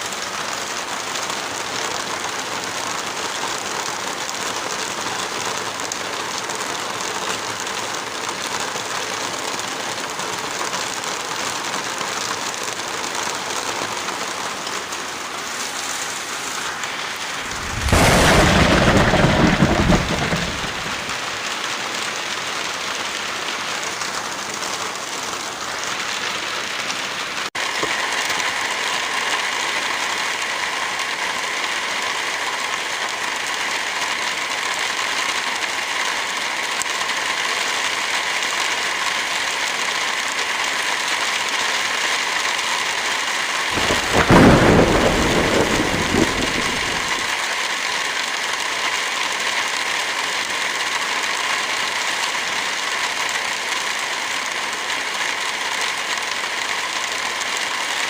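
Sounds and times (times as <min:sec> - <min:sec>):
heavy rain falling: 0:00.0 - 0:58.0
loud low rumble: 0:17.3 - 0:21.2.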